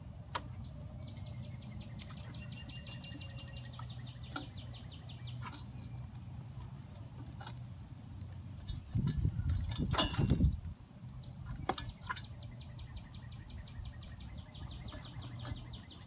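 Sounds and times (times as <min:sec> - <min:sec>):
handle parts clicking and knocking: 0:00.3 - 0:10.7, 0:11.4 - 0:12.4, 0:14.8 - 0:16.0
songbird trilling: 0:00.5 - 0:06.0, 0:10.4 - 0:16.0.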